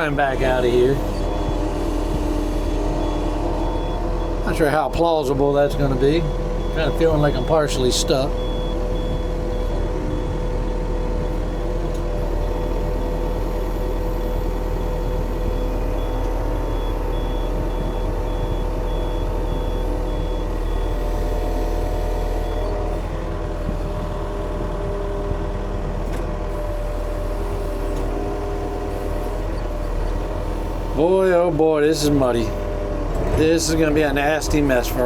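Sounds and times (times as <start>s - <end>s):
reverse alarm beeping: 0.0s - 11.4s
diesel engine running: 0.0s - 35.0s.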